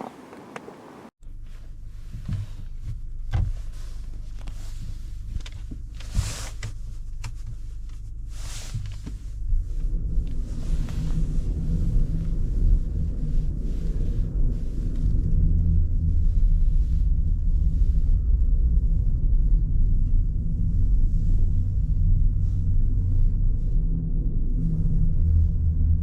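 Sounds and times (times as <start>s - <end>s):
car engine idling: 0.0s - 1.1s.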